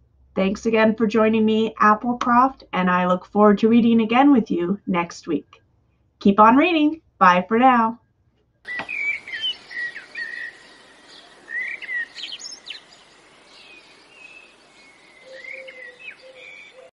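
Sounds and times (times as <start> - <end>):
outdoor hiss: 8.7 - 16.7
songbirds chirping: 8.7 - 16.9.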